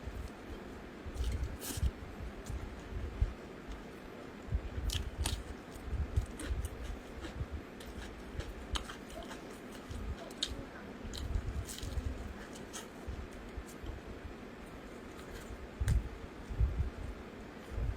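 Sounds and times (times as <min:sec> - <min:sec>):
chewing food: 0:04.8 - 0:14.0.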